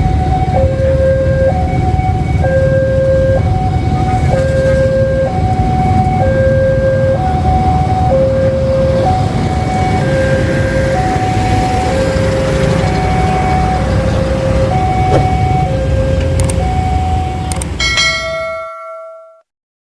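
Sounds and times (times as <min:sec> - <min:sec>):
passing train rumble: 0:00.0 - 0:19.1
two-tone warning alarm: 0:00.0 - 0:19.4
bright ringing chime: 0:17.8 - 0:19.4.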